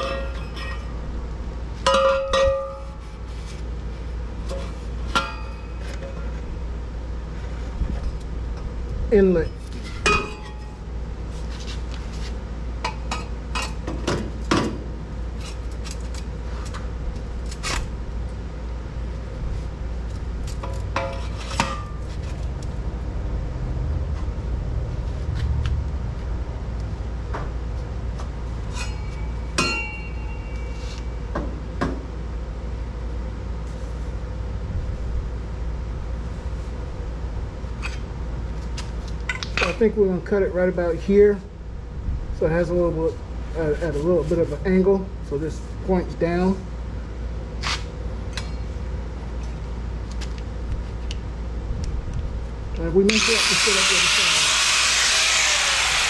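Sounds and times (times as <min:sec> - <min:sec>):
metal tubing clinking and clanking: 0:00.0 - 0:01.0
steady low hum: 0:00.0 - 0:56.0.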